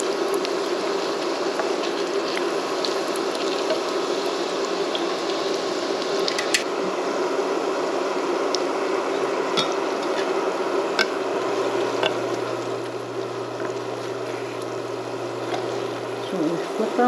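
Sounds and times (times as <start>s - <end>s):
oil popping and crackling: 0.0s - 6.6s, 11.0s - 16.3s
donuts sizzling in hot oil: 0.0s - 17.0s
low steady hum: 10.6s - 17.0s.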